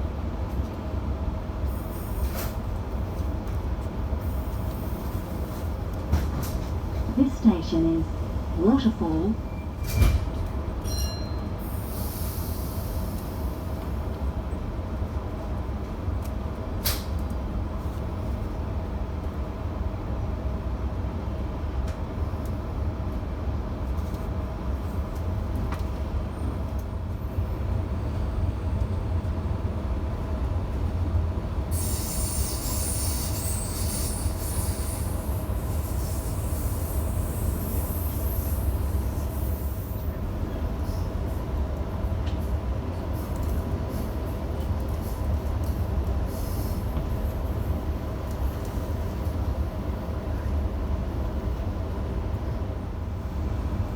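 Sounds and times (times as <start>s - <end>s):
train rumble and motor hum: 0.0s - 53.9s
wheels squealing on rails: 31.7s - 40.2s.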